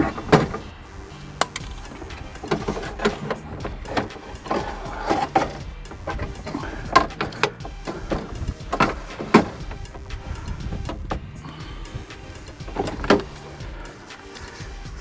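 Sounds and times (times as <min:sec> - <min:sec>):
hands clicking and rattling car parts: 0:00.0 - 0:15.0.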